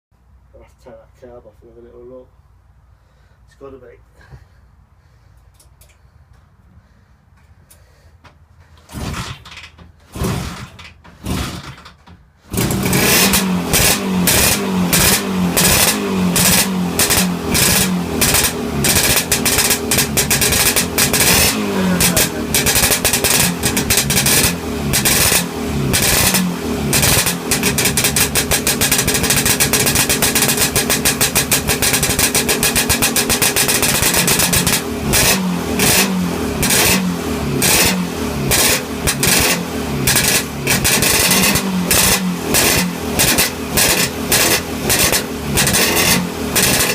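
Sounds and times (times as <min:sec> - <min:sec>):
two-stroke engine popping: 0:08.9 - 0:46.9.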